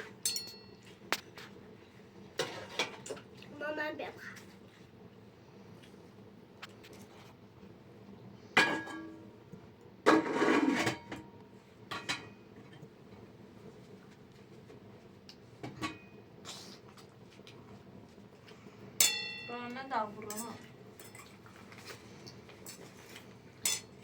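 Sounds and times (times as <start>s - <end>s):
dishes clinking and knocking: 8.6s - 9.2s, 11.9s - 12.8s, 15.6s - 16.0s
pot scraping: 10.1s - 11.2s.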